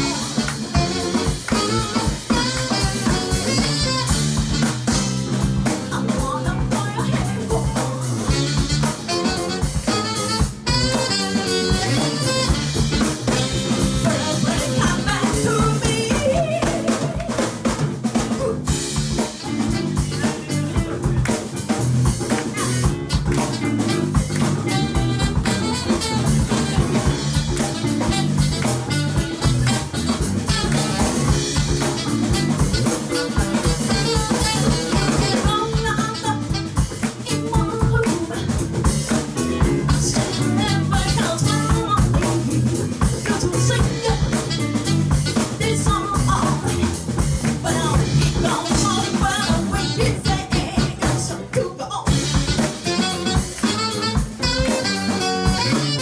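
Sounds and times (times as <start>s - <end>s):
snare drum rimshots: 0.0s - 5.2s, 18.9s - 35.6s, 52.1s - 56.0s
bass drum beat: 0.0s - 56.0s
electric guitar: 0.0s - 56.0s
live band music: 0.0s - 56.0s.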